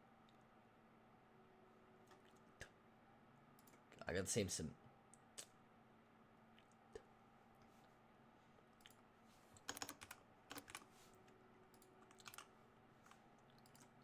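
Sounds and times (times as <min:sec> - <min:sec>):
typing on computer keyboard: 0:09.6 - 0:10.9, 0:11.7 - 0:13.9.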